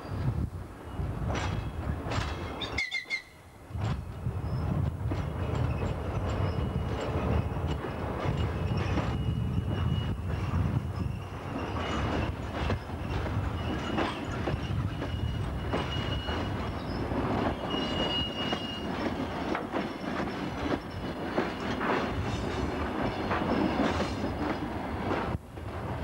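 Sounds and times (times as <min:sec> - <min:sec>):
train wheels clattering over rail joints: 0:01.2 - 0:03.0, 0:03.8 - 0:25.8
high wheel squeal: 0:08.4 - 0:19.0.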